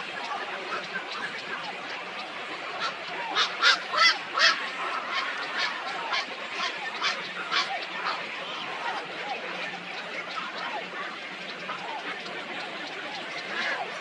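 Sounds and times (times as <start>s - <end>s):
waterfowl calling: 0.0s - 9.0s
chatter of many birds: 0.0s - 14.0s.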